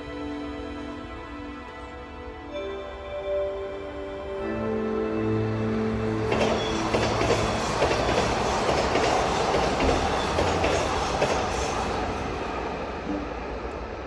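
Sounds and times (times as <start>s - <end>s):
train wheels on rail: 5.8s - 14.0s.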